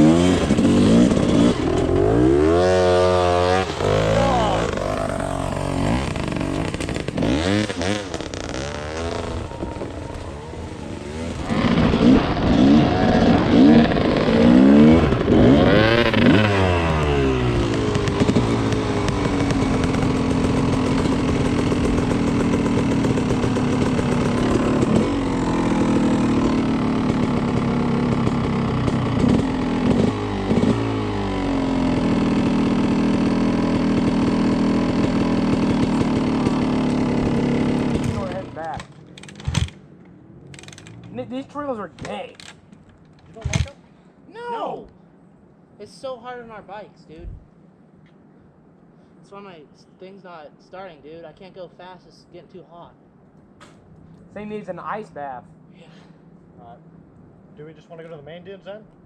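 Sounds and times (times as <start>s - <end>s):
dirt bike engines revving: 0.0s - 43.7s.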